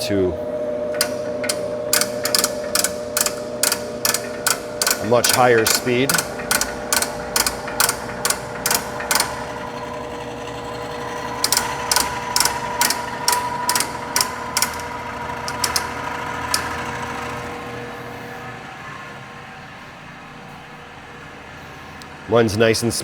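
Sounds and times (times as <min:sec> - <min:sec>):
conveyor drive whining: 0:00.0 - 0:21.2
sharp regular clicks: 0:00.9 - 0:09.6, 0:11.3 - 0:17.3.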